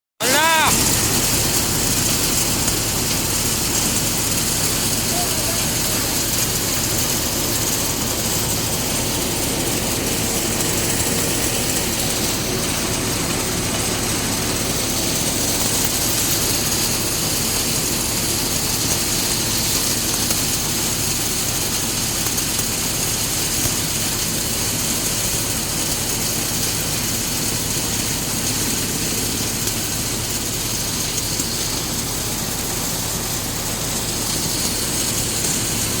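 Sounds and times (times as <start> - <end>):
tractor diesel engine running: 0.3 - 36.0.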